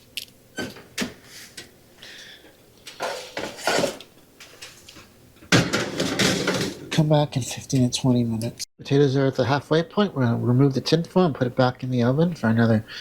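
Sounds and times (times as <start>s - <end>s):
metal pan clattering on oven rack: 5.5s - 7.0s.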